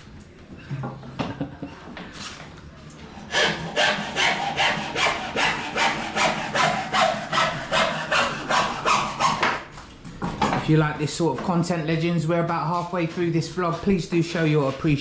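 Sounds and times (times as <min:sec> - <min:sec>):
handsaw cutting moulding: 0:03.1 - 0:09.7.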